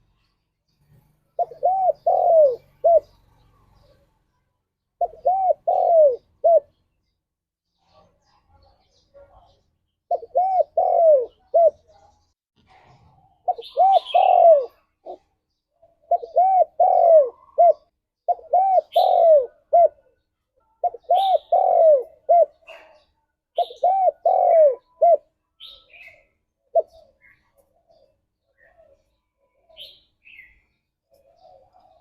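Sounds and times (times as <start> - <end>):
small bird chirping: 0.0 - 32.0
dove cooing: 1.3 - 4.1, 5.0 - 6.8, 10.1 - 11.9, 13.4 - 32.0.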